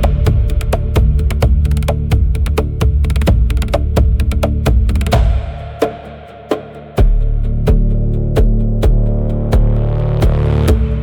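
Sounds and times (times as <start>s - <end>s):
wood block clicks percussion: 0.0s - 10.4s
steady bass: 0.0s - 11.0s.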